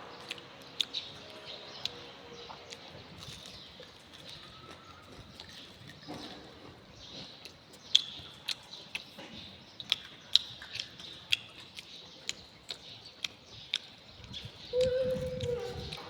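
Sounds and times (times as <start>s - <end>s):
eating clicks and smacks: 0.1s - 16.0s.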